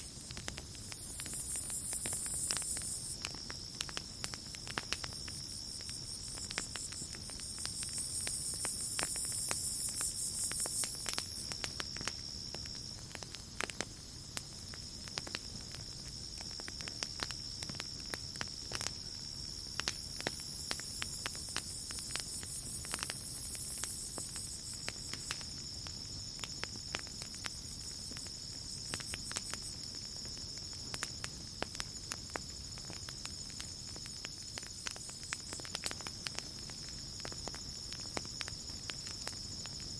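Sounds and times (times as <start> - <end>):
campfire crackling: 0.0 - 39.9
cricket trill: 0.0 - 39.9
insect buzz: 0.9 - 12.9.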